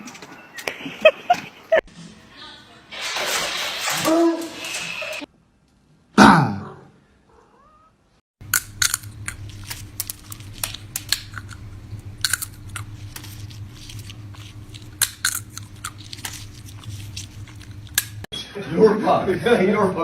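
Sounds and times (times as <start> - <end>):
crisp crunches and clicks: 8.4 - 18.3
steady low hum: 8.4 - 18.3.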